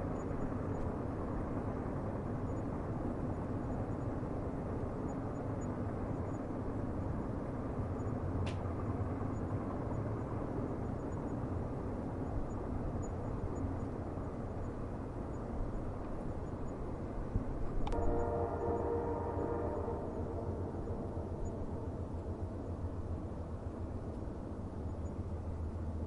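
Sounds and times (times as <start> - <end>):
train rumbling on rails: 0.0 - 26.0
click: 8.4 - 8.7, 17.8 - 18.1
train horn: 17.8 - 22.8.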